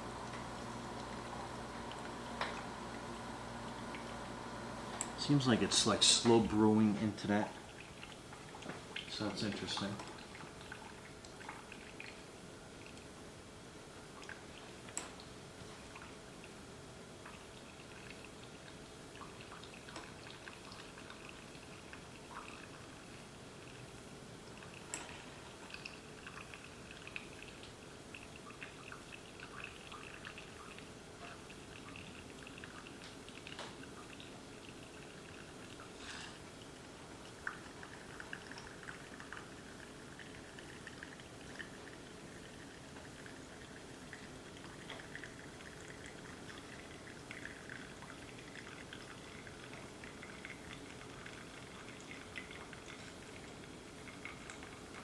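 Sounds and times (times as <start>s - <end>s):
coffee trickling onto ice: 0.0s - 7.2s
coffee trickling and dripping: 0.0s - 55.0s.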